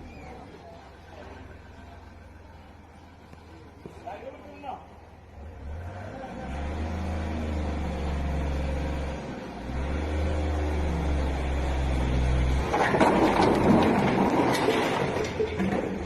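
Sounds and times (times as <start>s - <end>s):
loud rushing clattering noise: 12.6s - 16.0s.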